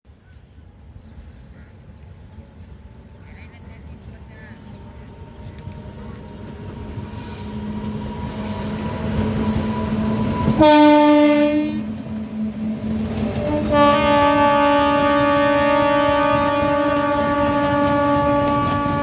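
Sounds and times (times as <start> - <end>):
train rumbling: 0.1 - 19.0
locomotive horn blasts: 9.8 - 12.0, 13.4 - 19.0.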